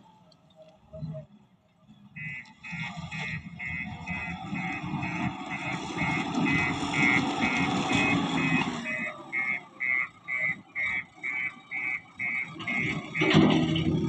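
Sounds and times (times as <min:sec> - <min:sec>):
reversing alarm beeping: 0:02.2 - 0:14.0
machine engine running: 0:03.1 - 0:14.0.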